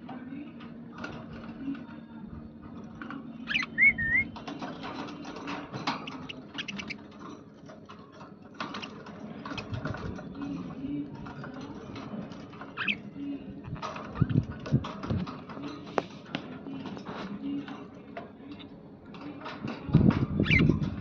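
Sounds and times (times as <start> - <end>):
budgerigars chattering: 3.5 - 4.3, 6.0 - 7.0.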